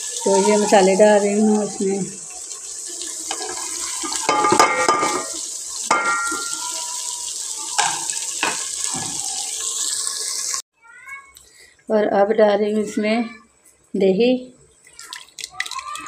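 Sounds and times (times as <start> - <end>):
masala sizzling in hot oil: 0.0 - 10.6.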